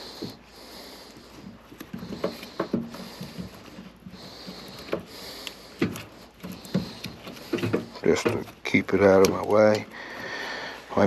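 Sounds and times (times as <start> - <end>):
rustling of wires and tape: 0.0 - 11.0
light taps and clicks: 4.4 - 9.9.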